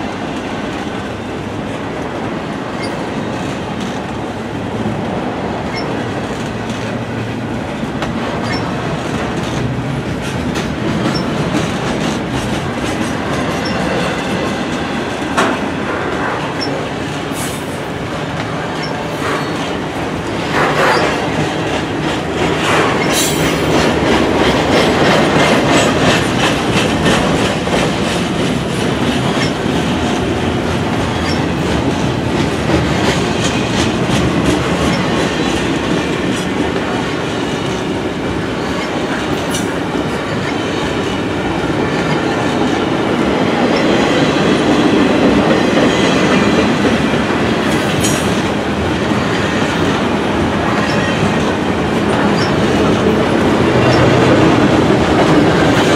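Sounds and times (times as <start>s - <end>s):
train wheels clicking: 0.0s - 55.9s
metallic squeals: 8.4s - 8.7s.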